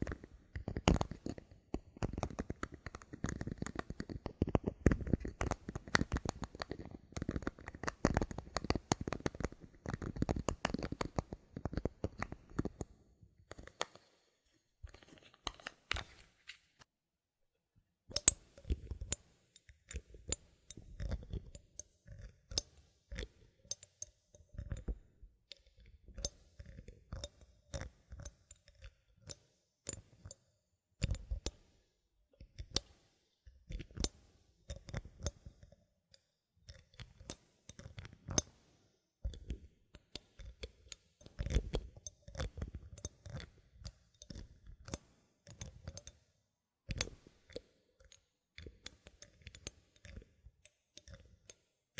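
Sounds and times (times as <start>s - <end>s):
bottle caps clicking and tapping: 18.1s - 18.9s.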